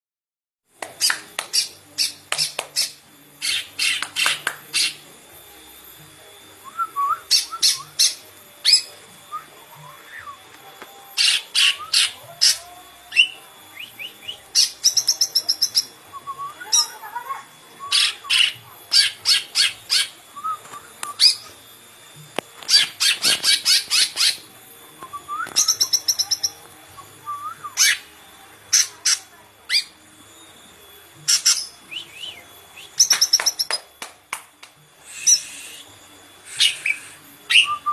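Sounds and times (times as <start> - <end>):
bird chirping and trilling: 1.0 - 5.0, 7.3 - 9.0, 11.2 - 17.1, 17.8 - 20.6, 21.2 - 21.5, 22.7 - 24.5, 25.4 - 26.6, 27.8 - 28.1, 28.7 - 30.0, 31.3 - 32.3, 32.9 - 33.8.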